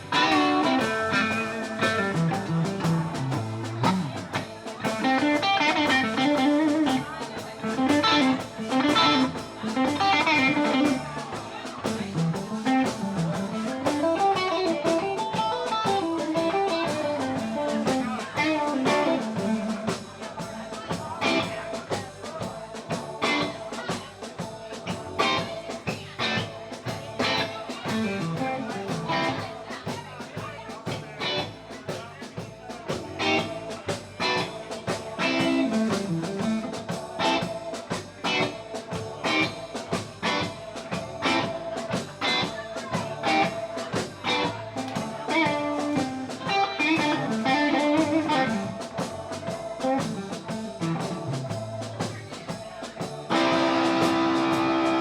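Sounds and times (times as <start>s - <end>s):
electric guitar lead: 0.0s - 7.0s, 7.7s - 11.2s, 12.2s - 19.9s, 44.2s - 48.8s, 53.3s - 55.0s
drum kit beat: 0.0s - 55.0s.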